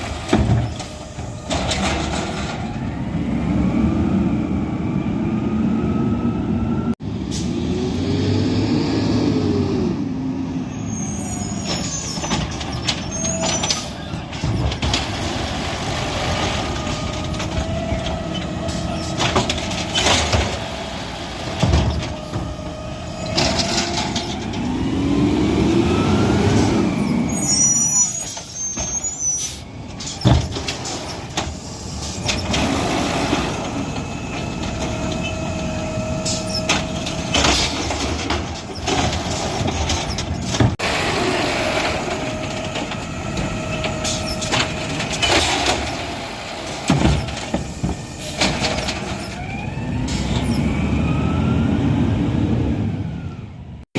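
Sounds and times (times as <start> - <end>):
garbage truck engine revving: 12.4 - 28.0, 30.2 - 53.4.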